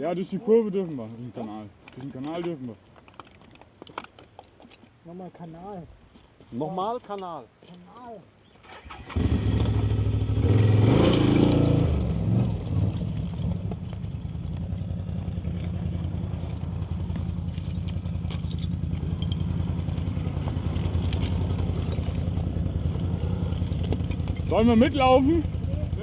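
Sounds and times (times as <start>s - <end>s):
atv engine revving and idling: 8.9s - 26.0s.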